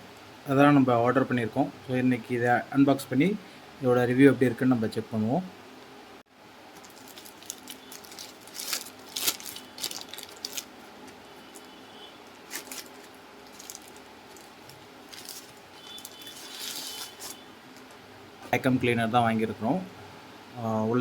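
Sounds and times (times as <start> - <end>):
packaging rustling and crinkling: 6.7 - 18.0.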